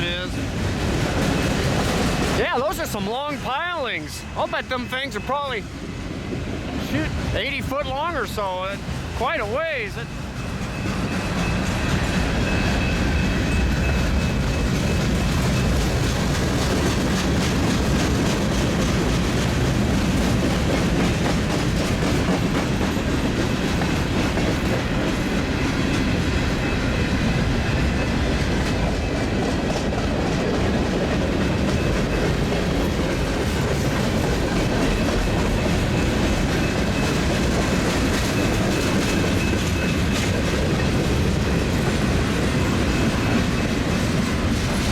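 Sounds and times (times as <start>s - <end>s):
freight train cars rolling: 0.0s - 44.9s
wheels clicking over rail joints: 28.2s - 44.9s.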